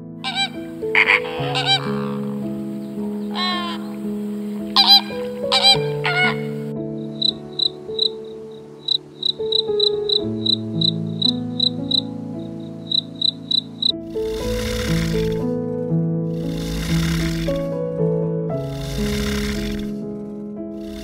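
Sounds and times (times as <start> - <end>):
soft piano music: 0.0 - 21.0
flamingo calls: 0.2 - 12.1
crickets chirping: 0.2 - 15.4.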